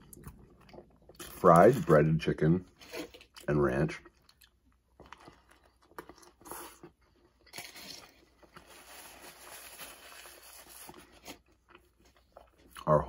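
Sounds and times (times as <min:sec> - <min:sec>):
soft chewing crunches: 0:00.0 - 0:13.0
biting into a burger: 0:04.1 - 0:12.9.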